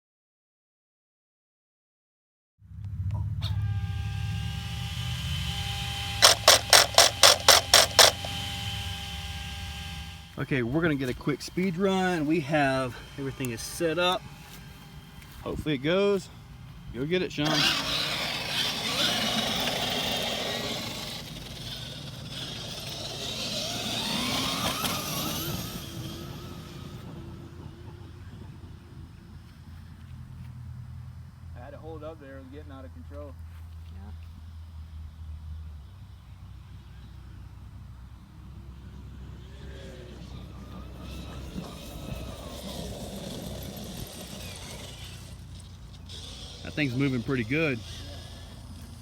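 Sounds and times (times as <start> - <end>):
gear and tyre noise: 2.6 - 49.0
electric motor whine: 2.8 - 33.2, 36.2 - 49.0.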